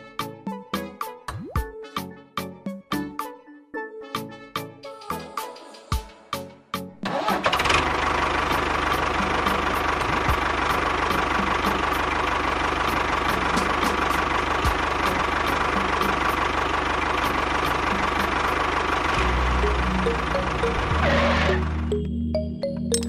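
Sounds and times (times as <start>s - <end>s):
toy tractor engine chugging: 7.1s - 21.8s.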